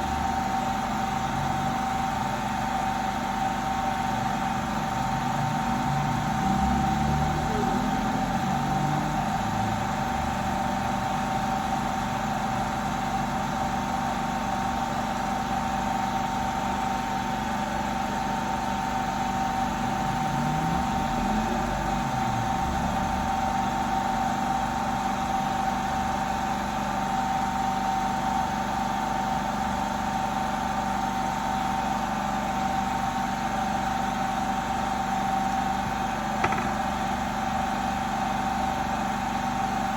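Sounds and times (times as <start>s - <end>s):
high-pitched hum: 5.4s - 9.4s.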